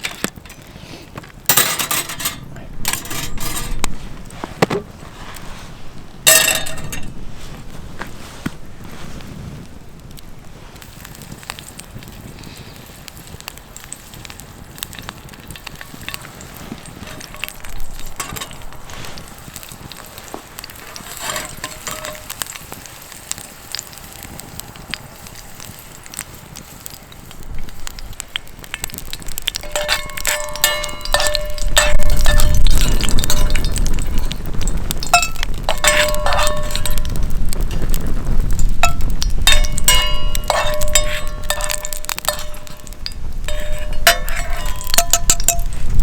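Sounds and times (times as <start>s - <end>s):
wood fire crackling: 0.0s - 46.0s
bright ringing clinks: 29.6s - 34.3s, 38.8s - 45.9s.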